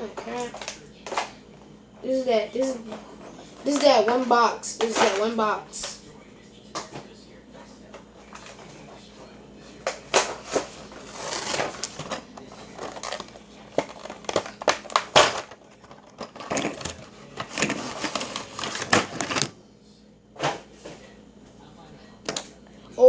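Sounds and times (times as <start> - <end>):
packaging crinkling: 10.2 - 19.5.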